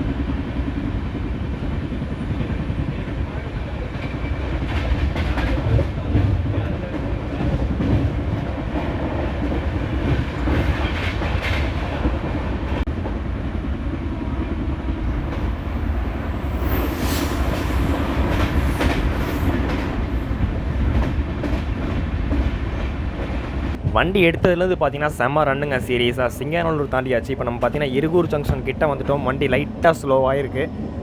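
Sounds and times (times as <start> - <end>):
train rumble: 0.0 - 31.0
wheels clacking over rail joints: 3.9 - 13.1, 15.1 - 23.9.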